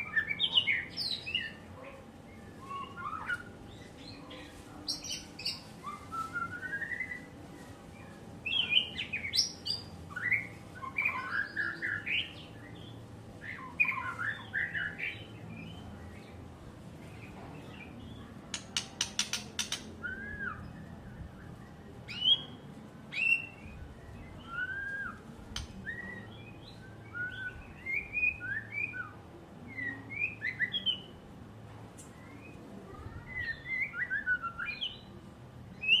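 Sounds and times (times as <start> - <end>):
bird singing whistled notes: 2.3 - 4.2, 4.9 - 7.3, 8.0 - 16.3, 17.7 - 31.2, 32.1 - 35.1, 35.7 - 36.0
bird clicks: 18.5 - 19.9, 25.5 - 25.8.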